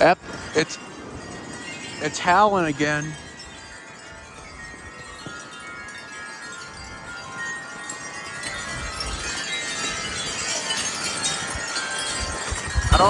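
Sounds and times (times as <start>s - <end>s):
wind chimes ringing: 0.0s - 13.0s
wind howling: 0.0s - 13.0s.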